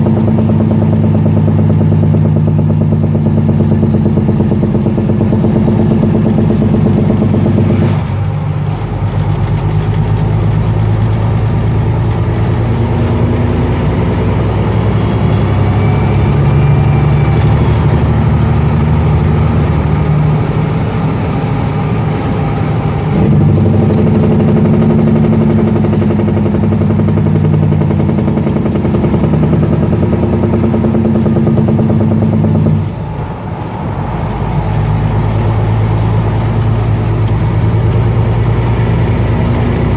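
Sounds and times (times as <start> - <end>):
diesel truck engine running: 0.0 - 39.9
turbo whistle: 13.9 - 20.0.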